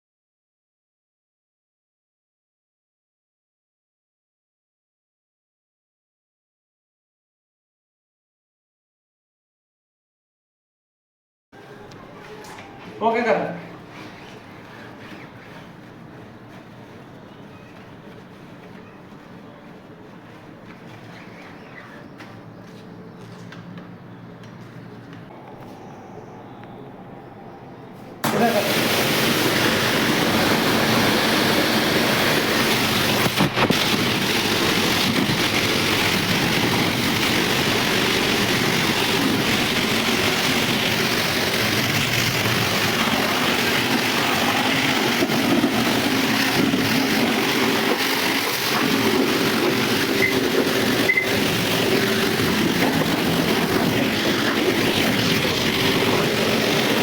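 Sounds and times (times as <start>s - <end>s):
washer pump humming: 25.3s - 57.0s
pressure washer jet hissing: 28.2s - 57.0s.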